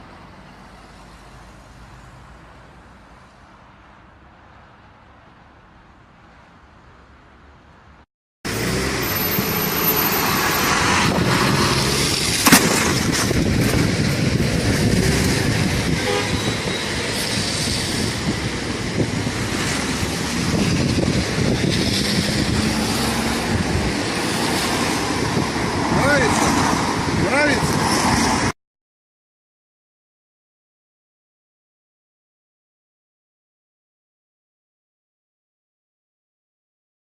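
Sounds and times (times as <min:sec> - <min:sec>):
loud vehicle noise: 0:00.0 - 0:28.6
sharp bang: 0:12.3 - 0:13.9.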